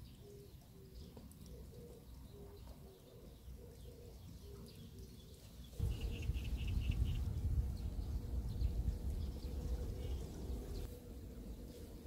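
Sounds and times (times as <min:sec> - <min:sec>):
bird cooing: 0:00.2 - 0:05.2.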